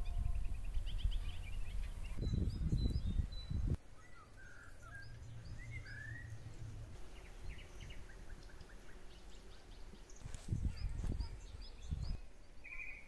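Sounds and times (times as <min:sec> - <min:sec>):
faint outdoor background: 0:00.0 - 0:13.0
songbirds calling: 0:00.0 - 0:13.0.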